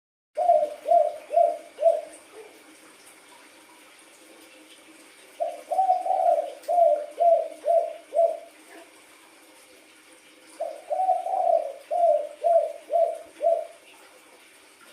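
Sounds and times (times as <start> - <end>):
dove cooing: 0.4 - 2.6, 5.4 - 8.9, 10.6 - 14.0.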